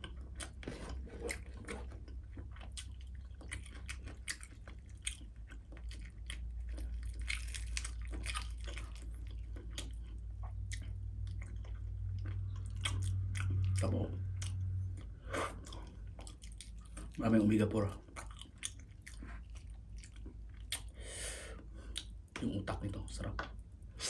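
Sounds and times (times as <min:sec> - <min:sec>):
chewing crispy fried fish: 0:00.0 - 0:21.0
low hum: 0:04.3 - 0:17.1.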